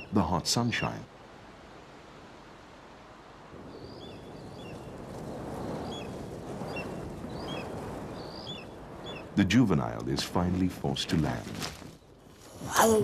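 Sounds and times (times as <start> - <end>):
wind-like noise: 0.0 - 13.0
bird chirping: 3.7 - 5.0, 5.6 - 9.4.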